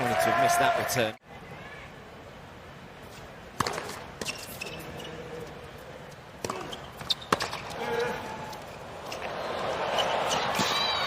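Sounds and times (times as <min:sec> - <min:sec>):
tennis ball knocks: 0:03.6 - 0:04.0.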